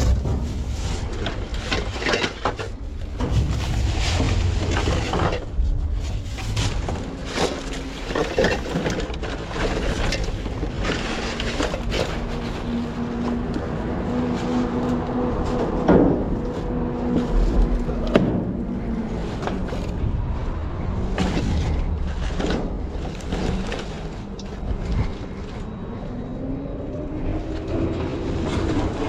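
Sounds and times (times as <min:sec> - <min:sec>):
rustling: 0:00.0 - 0:15.8
steady hum: 0:00.0 - 0:19.0
knocks and clatters of objects: 0:00.0 - 0:25.8.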